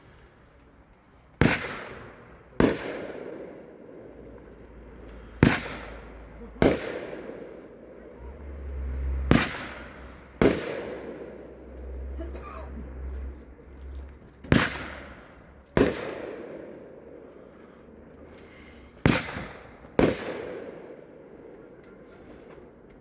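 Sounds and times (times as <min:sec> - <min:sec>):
firework booms with echo: 0:01.4 - 0:04.3, 0:05.3 - 0:08.3, 0:09.2 - 0:12.1, 0:14.4 - 0:17.6, 0:18.9 - 0:21.7.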